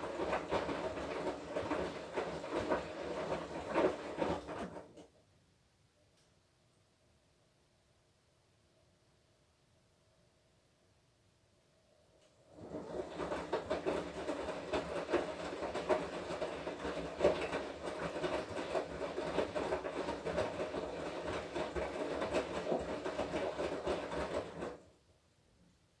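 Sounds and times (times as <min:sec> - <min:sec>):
laundry and water churning: 0:00.0 - 0:05.0, 0:12.5 - 0:24.9
washing machine motor hum: 0:00.0 - 0:05.1, 0:12.4 - 0:25.0.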